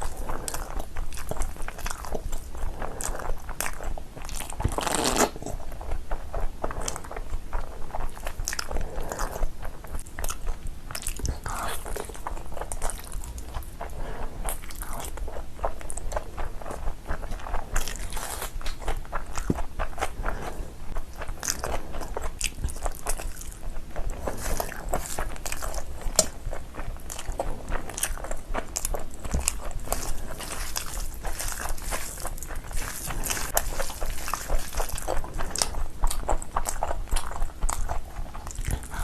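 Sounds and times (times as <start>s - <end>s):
person crunching and chewing food: 0.0s - 39.0s.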